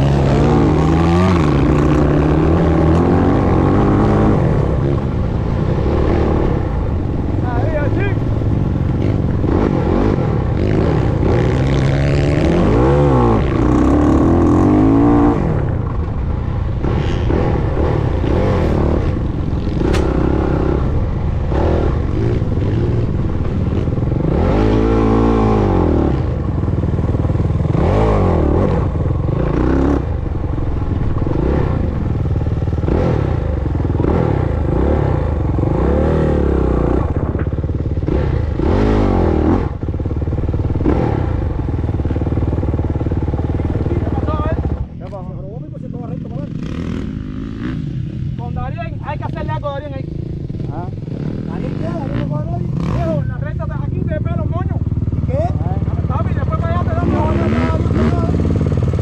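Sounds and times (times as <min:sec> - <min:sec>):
dirt bike engine revving: 0:00.0 - 0:45.2, 0:45.8 - 0:59.0
rattling and clatter: 0:18.0 - 0:20.8.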